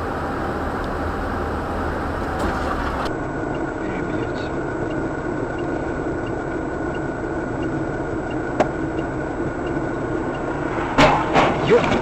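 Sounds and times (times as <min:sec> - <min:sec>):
car engine and road noise: 0:00.0 - 0:12.0
faint repeating tick: 0:04.8 - 0:10.5.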